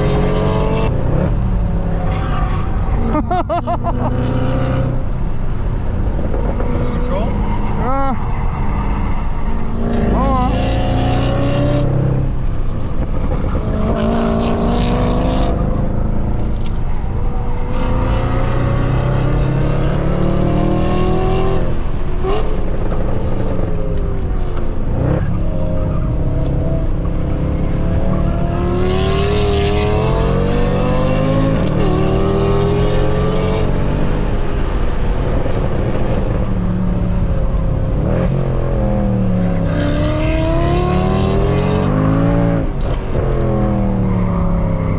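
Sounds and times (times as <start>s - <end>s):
car engine revving hard: 9.7s - 12.3s, 13.7s - 15.9s, 26.5s - 36.4s, 37.9s - 44.0s.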